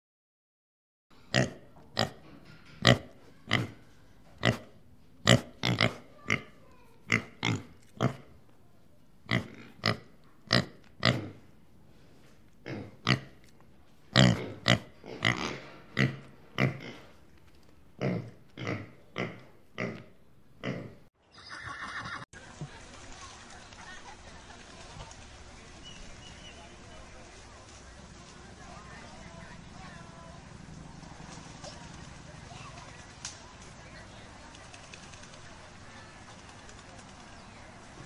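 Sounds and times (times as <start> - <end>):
pigs grunting: 1.3 - 2.2, 4.4 - 8.3, 9.3 - 11.5, 12.6 - 13.4, 14.1 - 17.2, 18.0 - 21.0.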